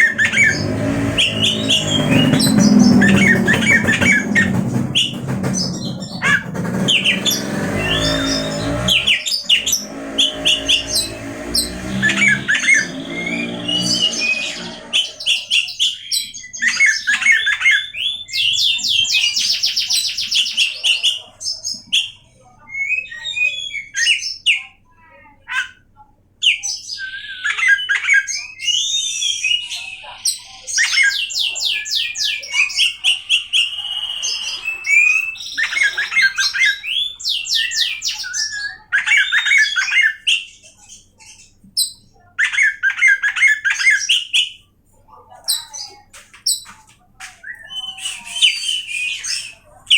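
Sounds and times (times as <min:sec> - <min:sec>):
low-pitched sound: 0:00.0 - 0:15.4
bird singing whistles and trills: 0:26.5 - 0:44.5, 0:47.4 - 0:49.9.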